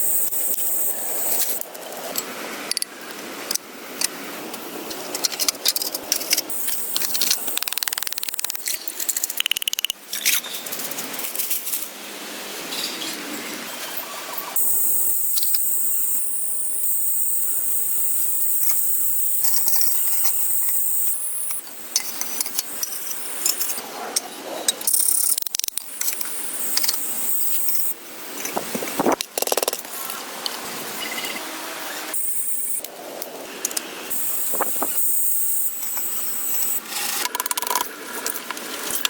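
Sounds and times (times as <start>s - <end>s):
steady high hiss: 14.6s - 23.8s, 31.8s - 37.1s.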